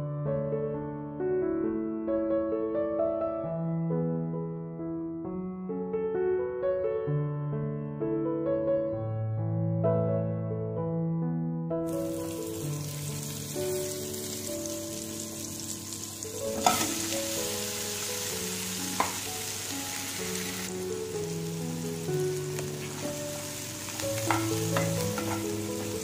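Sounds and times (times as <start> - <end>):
soft piano music: 0.0 - 26.0
food sizzling in hot oil: 11.9 - 26.0
utensil tapping against pan: 19.0 - 19.3, 24.2 - 25.6.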